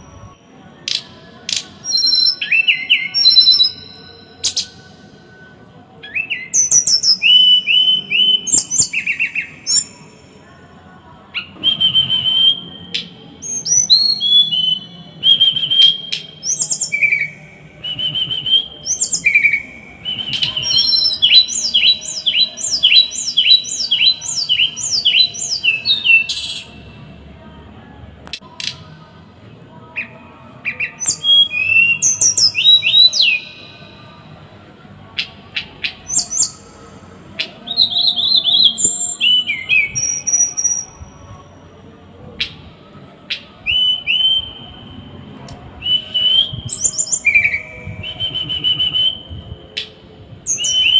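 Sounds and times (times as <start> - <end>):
songbird singing harsh whistles: 0.9 - 4.8, 6.0 - 10.0, 11.3 - 26.7, 30.6 - 33.7, 35.2 - 37.0, 37.6 - 41.2, 43.3 - 45.0, 45.8 - 50.9.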